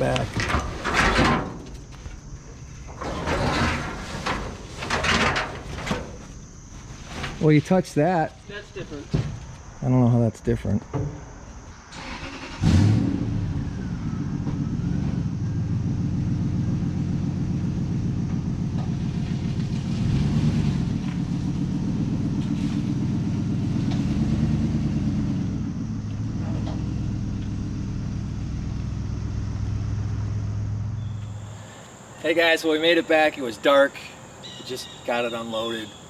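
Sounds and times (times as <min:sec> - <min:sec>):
vehicle engine driving: 0:12.3 - 0:36.0.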